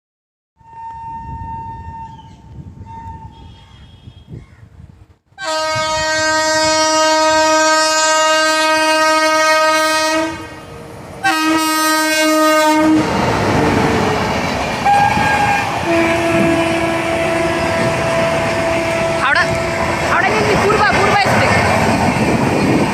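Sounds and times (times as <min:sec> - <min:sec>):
train horn blasts: 0:00.6 - 0:04.4, 0:05.4 - 0:14.2, 0:14.8 - 0:20.5
moving train rumble: 0:00.6 - 0:22.9.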